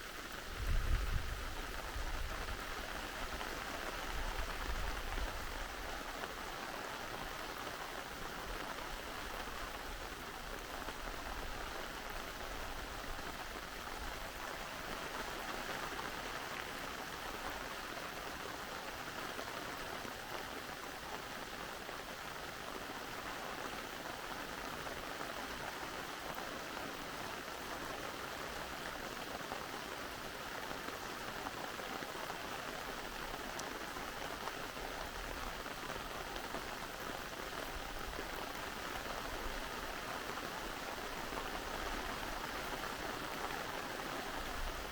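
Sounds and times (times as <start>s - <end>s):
steady rain pattering: 0.0s - 44.9s
stream rushing: 27.0s - 44.9s.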